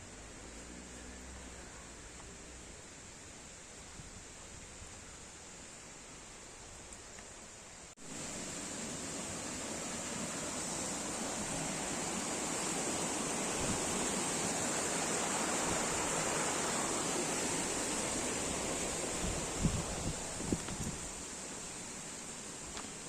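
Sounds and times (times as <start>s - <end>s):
flowing water rushing: 8.0s - 23.0s.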